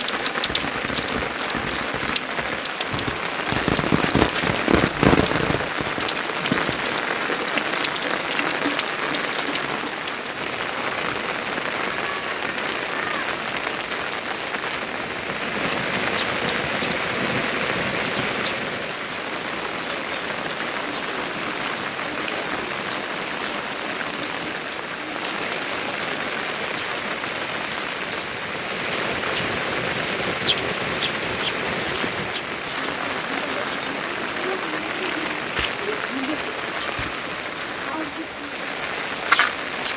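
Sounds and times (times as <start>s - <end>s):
single raindrop hits: 0.0s - 10.4s, 39.1s - 39.9s
steady rain patter: 0.0s - 39.9s.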